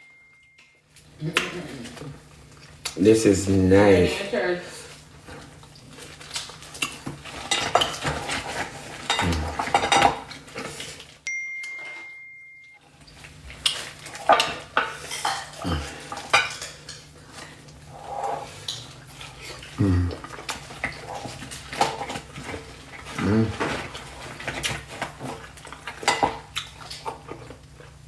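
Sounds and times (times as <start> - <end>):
faint steady high tone: 0.0 - 0.7, 11.3 - 12.8
cutlery clinking on dishes: 7.4 - 10.8, 13.7 - 17.5, 25.9 - 27.0.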